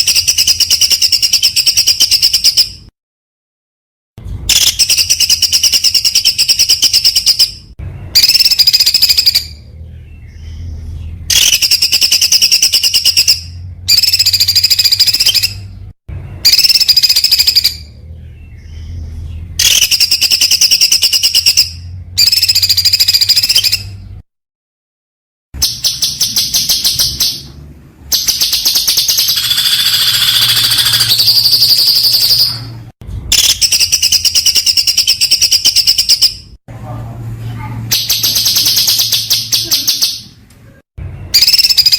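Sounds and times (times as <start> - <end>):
songbird singing fast high notes: 28.1 - 32.6.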